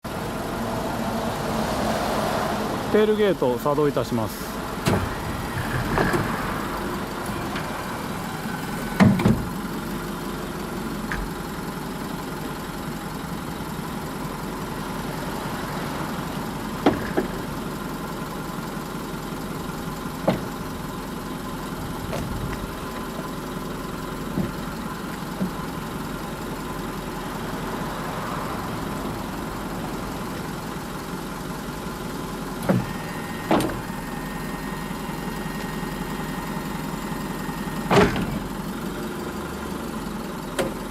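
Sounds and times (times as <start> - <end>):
tail gate machine hum: 0.0 - 40.9
metallic clunks: 32.6 - 33.9, 37.8 - 38.5.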